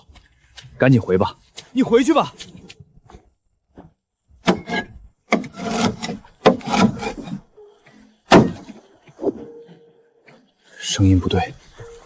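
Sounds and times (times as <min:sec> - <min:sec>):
scraping on hollow wooden planks: 0:02.4 - 0:07.6.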